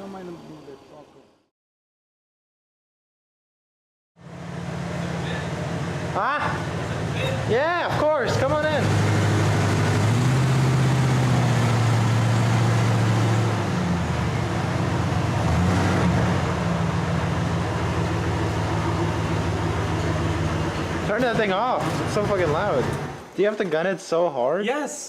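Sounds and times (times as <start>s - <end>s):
truck engine revving loudly: 4.2s - 23.3s.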